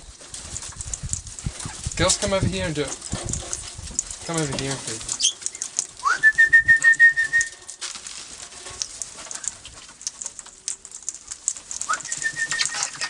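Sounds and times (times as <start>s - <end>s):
scratching: 0.0s - 13.0s
wings flapping: 0.0s - 13.0s
parrots squawking: 5.1s - 5.6s, 12.0s - 13.0s
parrot whistling call: 6.0s - 7.5s, 11.9s - 13.0s.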